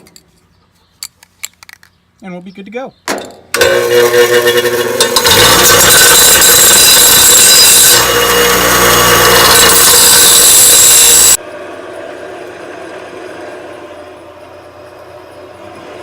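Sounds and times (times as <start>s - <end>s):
power drill boring through steel: 3.6s - 11.4s.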